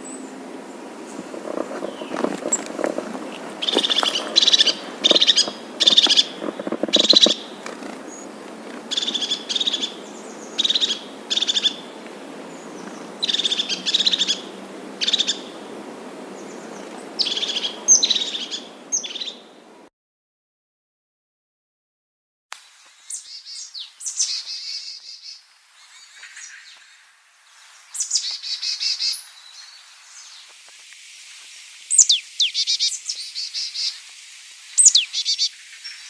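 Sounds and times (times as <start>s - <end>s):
bird calling high-pitched: 1.8s - 11.9s, 13.2s - 15.5s, 31.9s - 34.0s, 34.8s - 36.0s.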